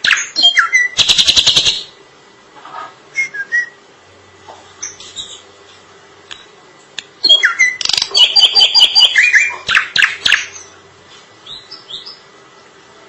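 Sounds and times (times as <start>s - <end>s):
bird whistling and chattering: 0.0s - 1.9s, 7.2s - 10.7s.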